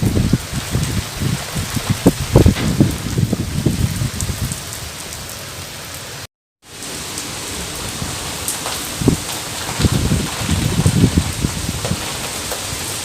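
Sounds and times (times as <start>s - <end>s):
heavy raindrops thudding: 0.0s - 4.9s, 6.6s - 13.0s
steady rain hiss: 0.0s - 13.0s.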